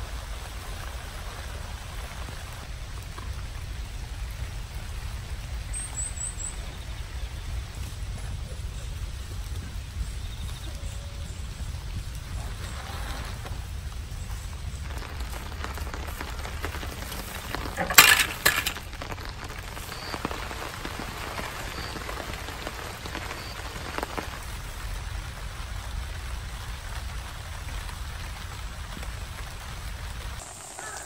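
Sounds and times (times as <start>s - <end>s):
steady rain falling: 0.0s - 31.0s
plastic crackling rustle: 10.8s - 25.0s.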